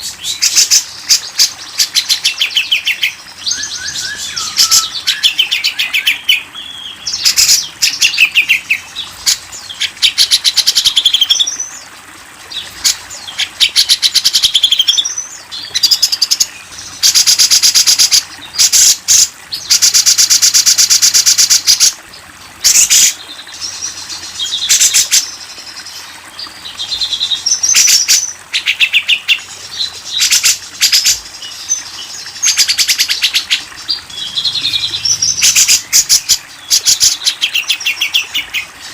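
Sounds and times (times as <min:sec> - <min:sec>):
songbird trills and chirps: 0:00.0 - 0:11.7.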